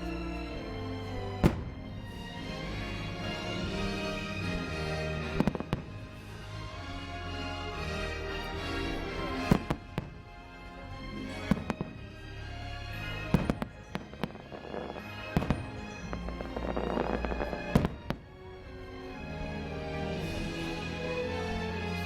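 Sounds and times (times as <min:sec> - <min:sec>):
orchestral music: 0:00.0 - 0:22.0
fireworks bursting: 0:01.4 - 0:01.9, 0:05.1 - 0:06.3, 0:09.5 - 0:10.3, 0:11.3 - 0:12.4, 0:13.0 - 0:18.4.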